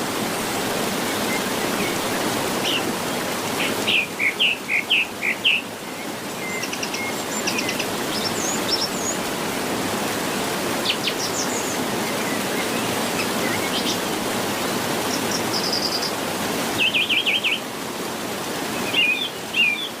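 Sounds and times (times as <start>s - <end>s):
small birds chirping: 3.5s - 9.3s.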